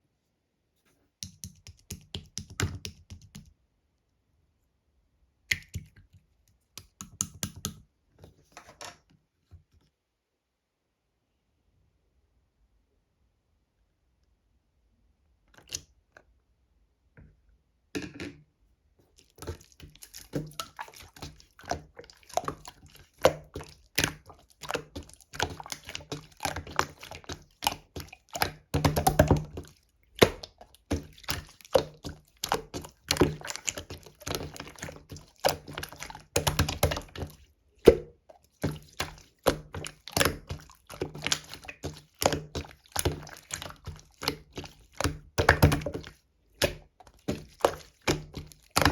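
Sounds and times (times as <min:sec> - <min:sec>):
slime squelching by hand: 0:19.1 - 0:48.9.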